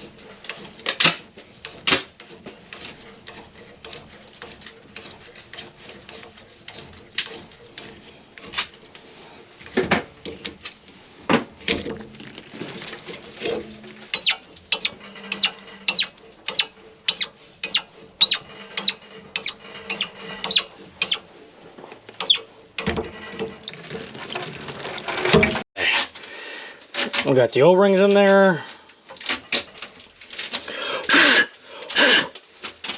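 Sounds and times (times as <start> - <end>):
sharp metallic strokes on pipe: 14.1 - 21.2.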